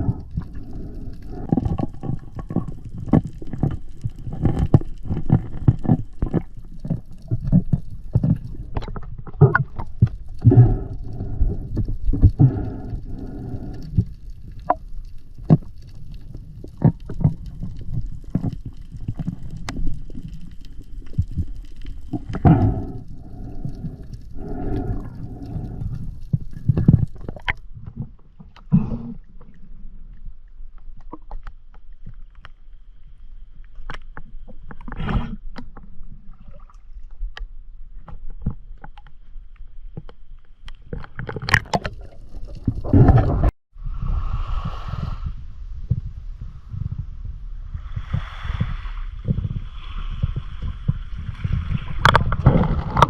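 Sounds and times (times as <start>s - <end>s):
water sloshing and gurgling: 0.0s - 53.0s
low rumble: 42.1s - 53.0s.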